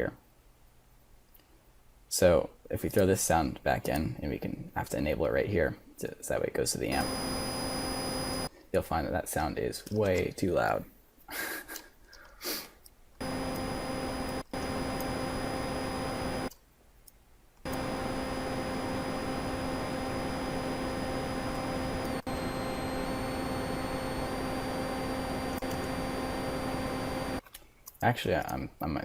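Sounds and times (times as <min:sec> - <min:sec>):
high whining tones: 0:06.8 - 0:08.5, 0:13.2 - 0:16.5, 0:17.7 - 0:27.4
synthesized computer fan hiss: 0:06.8 - 0:08.5, 0:13.2 - 0:16.5, 0:17.7 - 0:27.4
low hum: 0:06.9 - 0:08.5, 0:13.2 - 0:16.5, 0:17.7 - 0:27.4.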